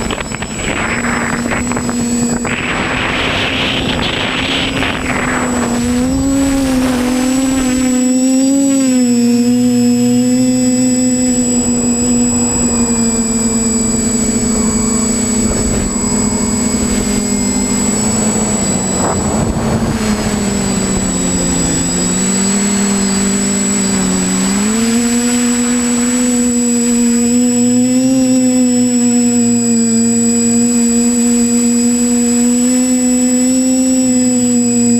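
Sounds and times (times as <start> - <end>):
drone propellers whining: 0.0 - 34.9
rushing noise: 14.2 - 27.1.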